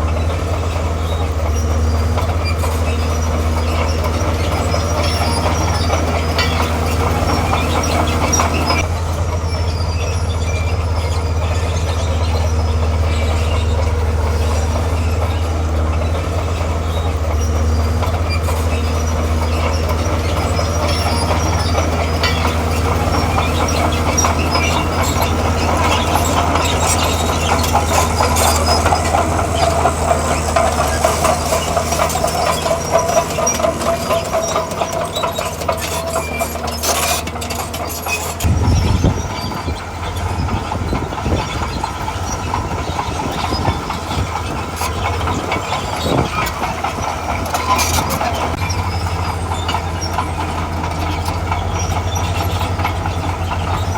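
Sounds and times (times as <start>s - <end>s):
diesel engine under load: 0.0s - 53.9s
steel tracks clanking: 0.0s - 53.9s
squealing tone: 16.9s - 39.8s.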